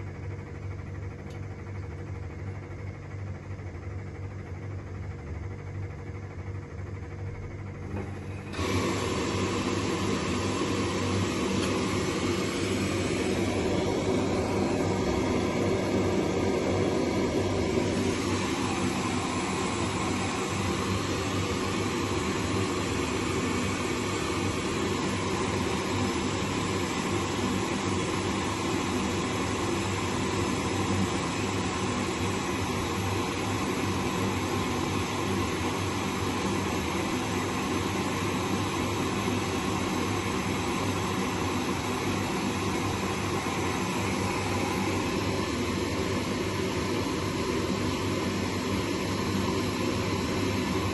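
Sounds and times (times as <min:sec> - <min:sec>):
faint hum: 0:00.0 - 0:36.4
washing machine whirring: 0:00.0 - 0:50.9.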